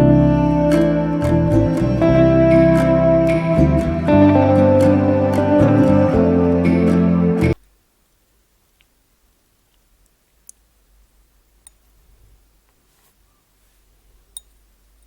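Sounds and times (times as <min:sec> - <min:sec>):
faint sharp clicks: 0:08.8 - 0:09.0, 0:09.7 - 0:10.7.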